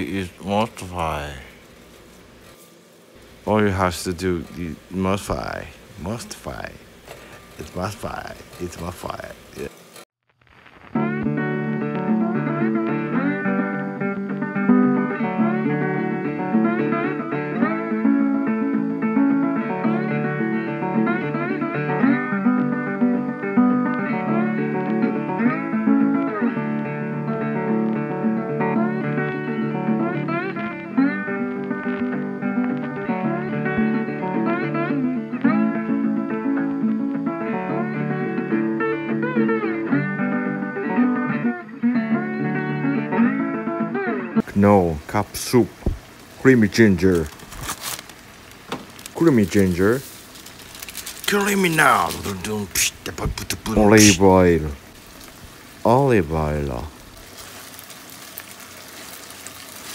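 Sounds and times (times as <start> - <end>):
country blues guitar music: 10.9 - 44.5, 50.5 - 56.2.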